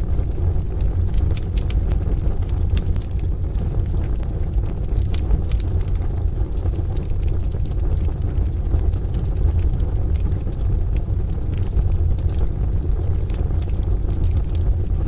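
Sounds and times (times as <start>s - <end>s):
rain: 0.0s - 15.0s
wood fire crackling and popping: 0.0s - 15.0s.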